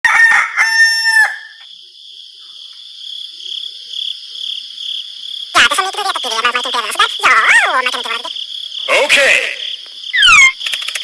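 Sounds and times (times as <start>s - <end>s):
rooster crowing: 0.0s - 1.6s
frogs croaking: 0.2s - 11.0s
insects chirring: 0.3s - 11.0s.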